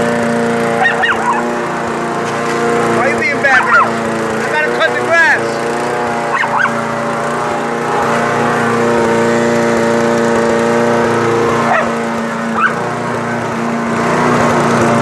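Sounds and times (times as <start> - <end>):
lawn mower engine droning: 0.0 - 15.0
dog barking: 0.8 - 1.6, 3.6 - 4.0, 6.3 - 6.8, 11.7 - 12.0, 12.6 - 12.9.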